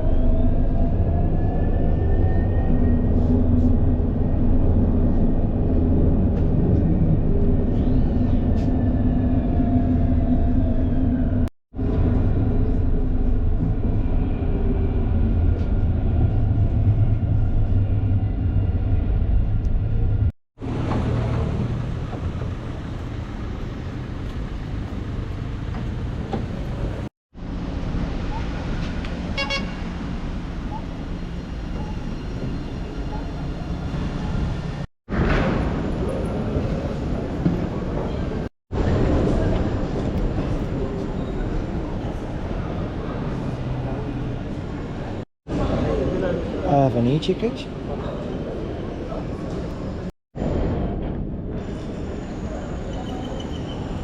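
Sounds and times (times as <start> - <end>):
electric tram rumbling on rails: 0.0 - 54.0.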